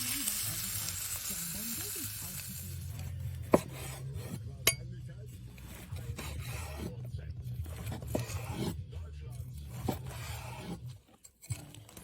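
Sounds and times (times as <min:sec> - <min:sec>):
steak sizzling over fire: 0:00.0 - 0:03.0.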